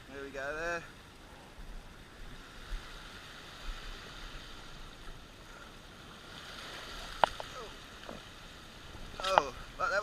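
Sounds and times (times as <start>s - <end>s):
sea washing against rocks: 2.0s - 10.0s.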